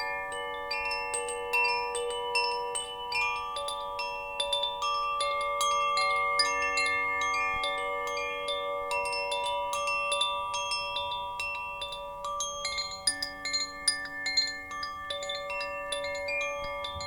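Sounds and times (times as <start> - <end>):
metal wind chimes ringing: 0.0 - 17.0.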